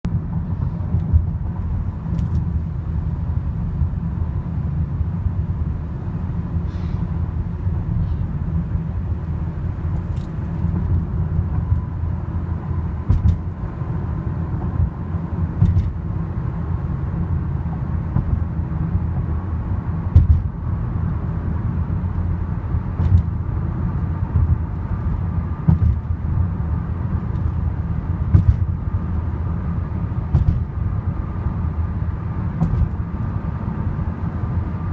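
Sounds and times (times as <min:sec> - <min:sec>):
freight train rumbling: 0:00.0 - 0:34.9
train knocks: 0:12.7 - 0:13.8, 0:20.1 - 0:20.6, 0:25.6 - 0:26.1, 0:28.2 - 0:28.8.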